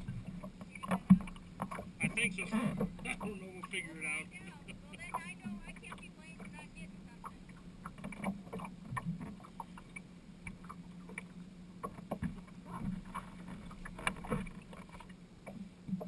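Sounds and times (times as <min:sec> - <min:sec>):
water splashing and knocks: 0:00.0 - 0:04.2, 0:07.2 - 0:16.0
low boat hum: 0:00.0 - 0:16.0
water slapping hull: 0:00.0 - 0:16.0.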